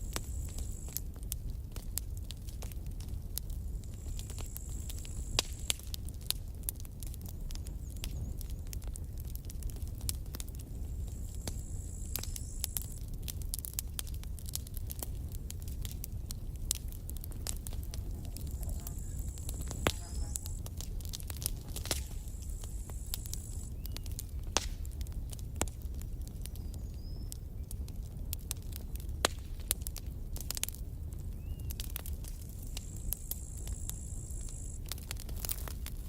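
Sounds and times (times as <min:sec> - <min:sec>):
campfire crackling and popping: 0:00.0 - 0:36.0
thin high hiss: 0:18.4 - 0:20.7, 0:21.8 - 0:23.7.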